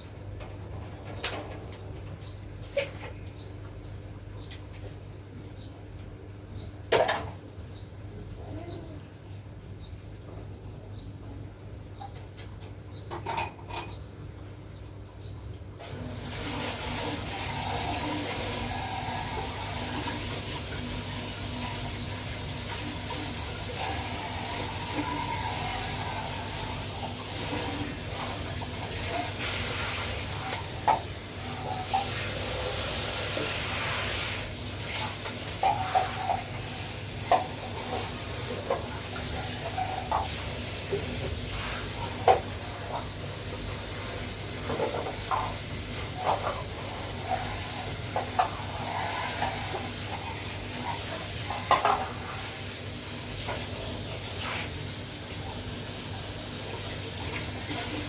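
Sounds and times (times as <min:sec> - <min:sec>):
vacuum cleaner running: 0:15.8 - 0:30.4.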